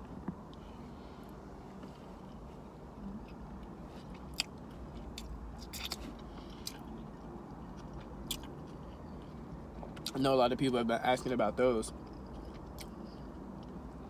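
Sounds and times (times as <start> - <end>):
person chewing: 1.3 - 10.2, 12.0 - 13.8.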